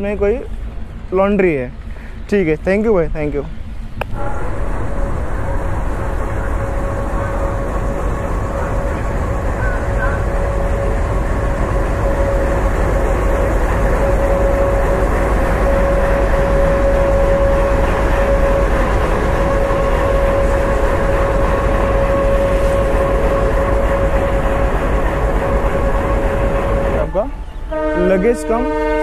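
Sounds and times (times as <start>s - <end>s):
train humming at platform: 0.0s - 29.0s.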